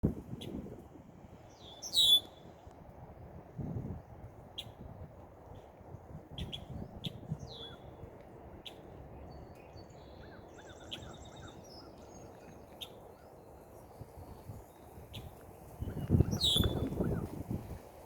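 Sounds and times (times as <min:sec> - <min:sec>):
birds chirping: 0:01.5 - 0:02.5, 0:05.6 - 0:17.4
bird fast trill: 0:01.6 - 0:02.4, 0:15.9 - 0:17.2.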